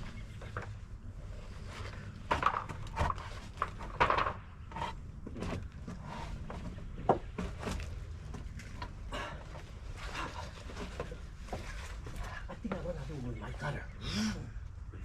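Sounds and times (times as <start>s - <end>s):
wooden deck boards clattering: 2.0s - 12.8s.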